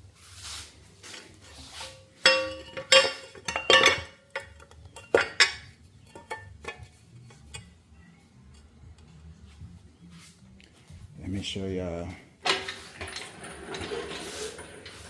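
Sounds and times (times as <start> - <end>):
metal tools clinking and clanking: 1.6 - 7.8, 12.4 - 15.0.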